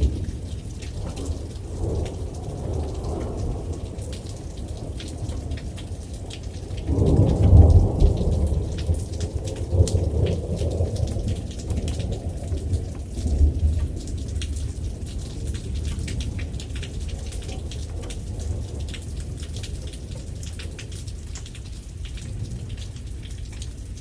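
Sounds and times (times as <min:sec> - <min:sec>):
thunder rumbling: 0:00.0 - 0:21.0
steady rain: 0:00.0 - 0:24.0.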